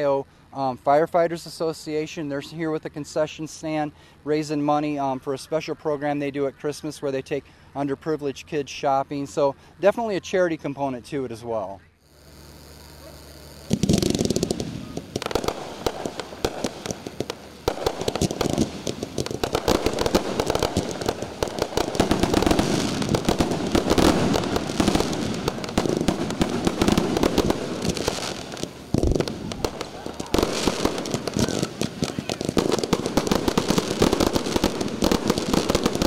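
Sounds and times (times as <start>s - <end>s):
fireworks bursts and crackling: 12.0s - 36.0s
firework strong bang: 13.6s - 36.0s.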